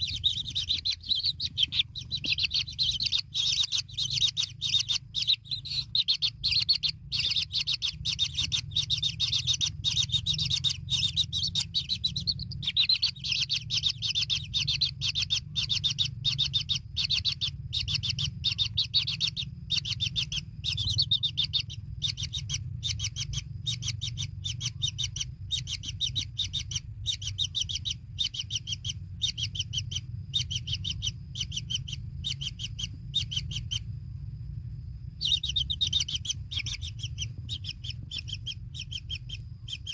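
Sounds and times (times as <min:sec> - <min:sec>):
bird chicks chirping: 0:00.0 - 0:39.9.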